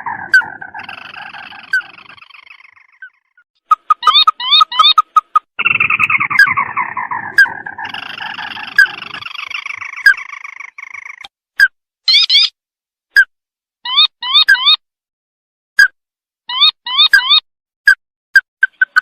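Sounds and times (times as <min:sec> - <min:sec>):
bird rattling trill: 0:00.0 - 0:11.2
crake calls: 0:00.0 - 0:11.3.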